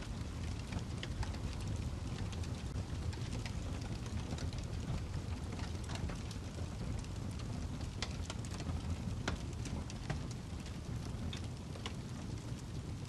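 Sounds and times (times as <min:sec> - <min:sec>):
fire crackling in fireplace: 0:00.0 - 0:13.0.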